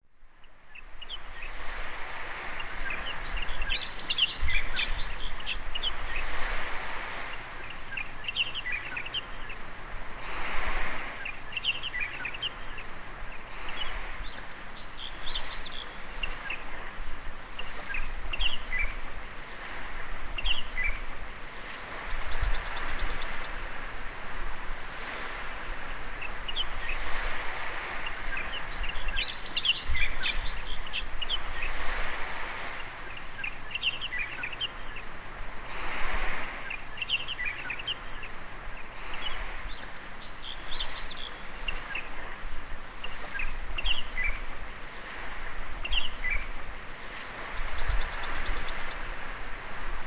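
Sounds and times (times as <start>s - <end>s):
small waves washing on beach: 0.0s - 50.0s
birds chirping and calling: 2.4s - 6.3s, 36.5s - 42.4s, 47.4s - 49.2s.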